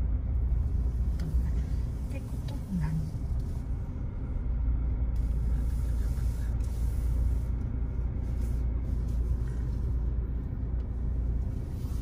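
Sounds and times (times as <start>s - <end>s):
motor vehicle rumble: 0.0s - 12.0s.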